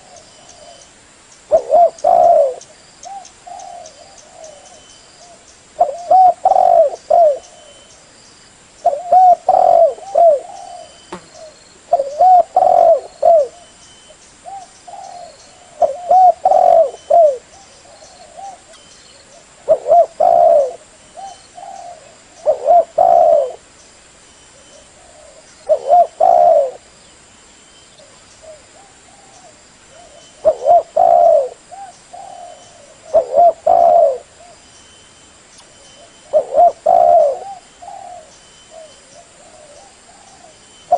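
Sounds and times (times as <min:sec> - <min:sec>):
dove cooing: 0:01.5 - 0:07.9, 0:08.8 - 0:13.7, 0:14.4 - 0:23.7, 0:24.6 - 0:26.8, 0:28.0 - 0:34.6, 0:36.0 - 0:40.9.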